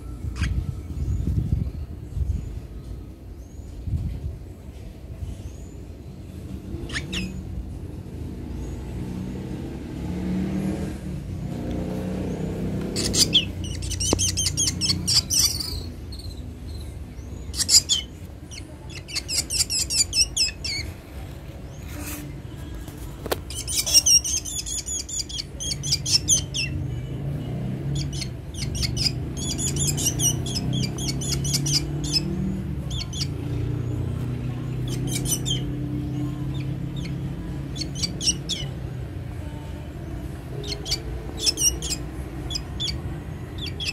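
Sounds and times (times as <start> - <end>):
bird chirping rapid high notes: 12.9 - 16.4, 27.5 - 33.4.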